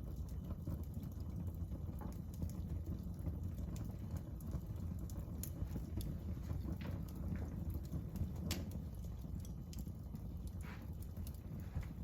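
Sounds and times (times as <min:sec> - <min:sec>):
wood fire crackling: 0:00.0 - 0:12.0
sharp pops and snaps: 0:03.6 - 0:12.0.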